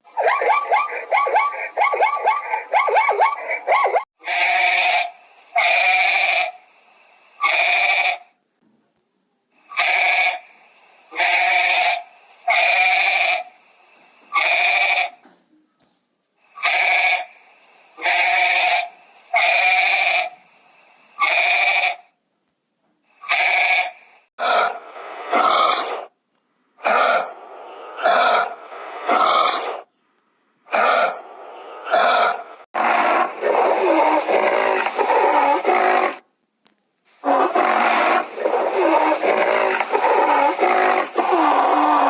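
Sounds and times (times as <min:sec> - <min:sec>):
animal calling: 0:00.1 - 0:06.6, 0:28.0 - 0:29.9, 0:30.7 - 0:36.2, 0:37.2 - 0:42.0
rough wavering animal call: 0:00.1 - 0:06.6, 0:37.2 - 0:42.0.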